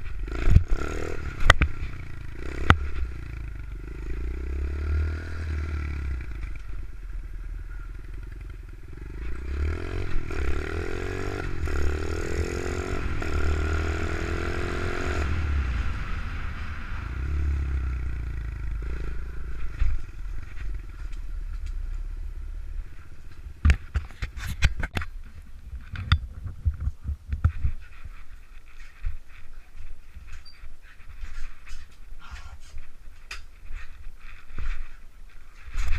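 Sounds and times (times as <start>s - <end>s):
motorbike engine revving: 0.2s - 6.6s, 7.9s - 21.3s.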